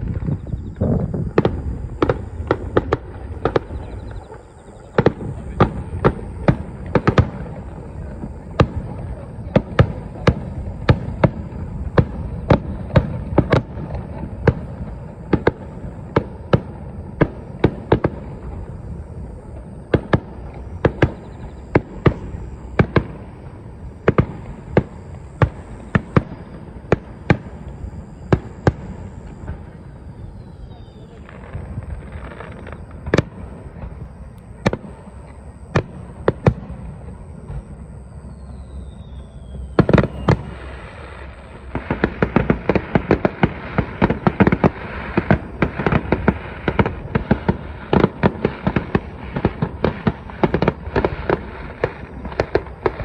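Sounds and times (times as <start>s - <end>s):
continuous low rumble: 0.0s - 53.0s
fireworks bursting with sharp bangs: 0.0s - 53.0s.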